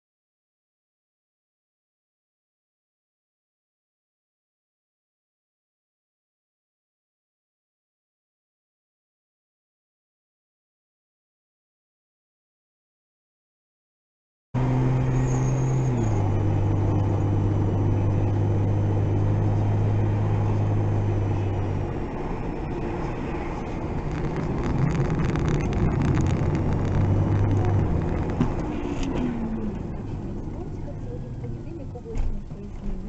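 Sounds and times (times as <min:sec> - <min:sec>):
car engine hum: 0:14.6 - 0:33.0
road noise: 0:14.6 - 0:33.0.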